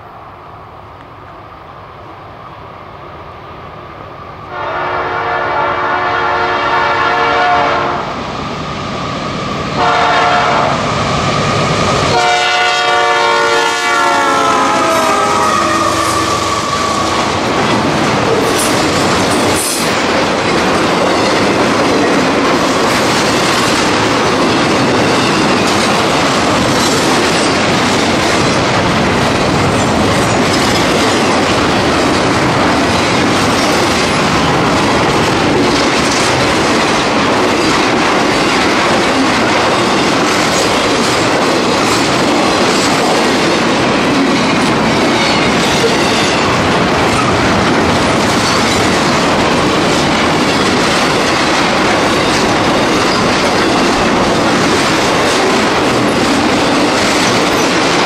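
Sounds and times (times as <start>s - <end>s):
train cars rumbling and clacking: 4.2s - 58.0s
locomotive air horn blasts: 4.5s - 8.0s, 9.8s - 10.8s, 12.1s - 17.3s.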